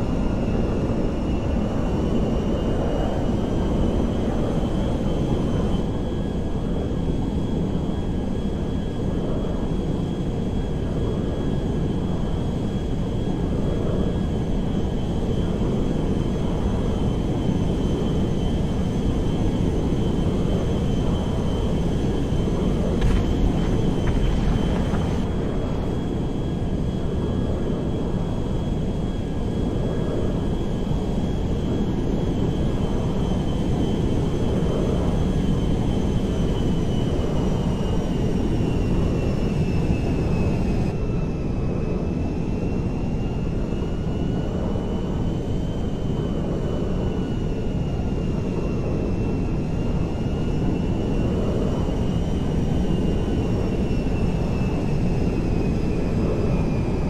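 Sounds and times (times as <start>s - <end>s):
aircraft engines rumbling: 0.0s - 57.0s
high engine whine: 17.9s - 27.9s.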